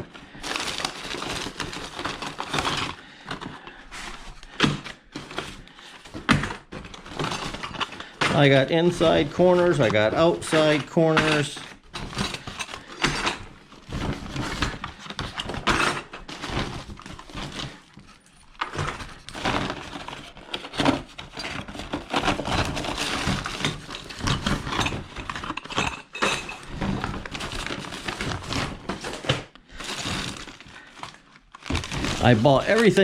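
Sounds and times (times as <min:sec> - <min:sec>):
plastic pieces clattering: 0:00.0 - 0:33.0
bag rustling: 0:26.6 - 0:33.0.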